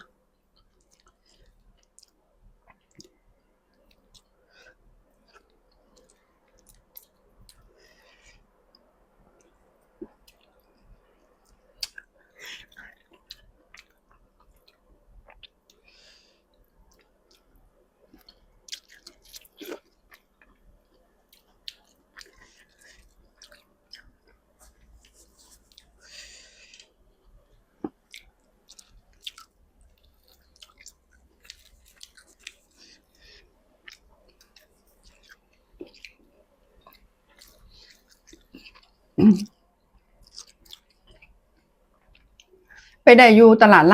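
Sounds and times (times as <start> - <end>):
person chewing food: 0.0 - 39.2, 39.9 - 43.0
wet mouth clicks: 11.5 - 12.1.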